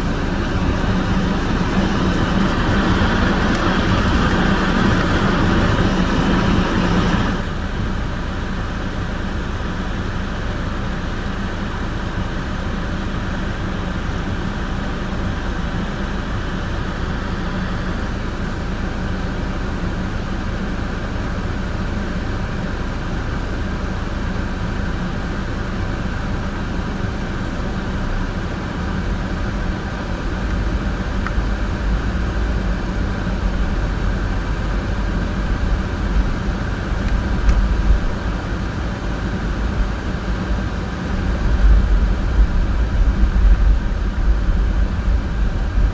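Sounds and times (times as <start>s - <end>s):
deep rumble: 0.0s - 7.5s, 27.9s - 45.9s
car road and engine noise: 0.0s - 45.9s.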